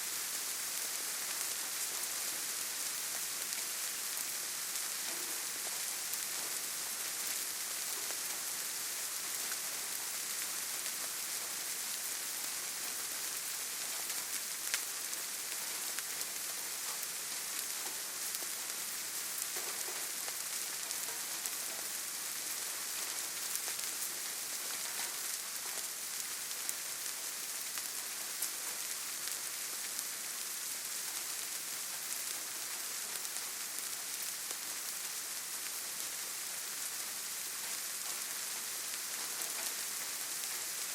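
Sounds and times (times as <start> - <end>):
rain on leaves: 0.0 - 40.9.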